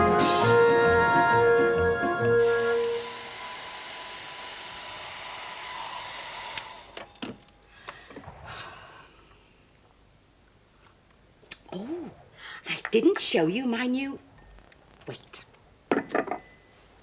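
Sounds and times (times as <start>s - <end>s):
hair dryer running: 2.2s - 7.2s.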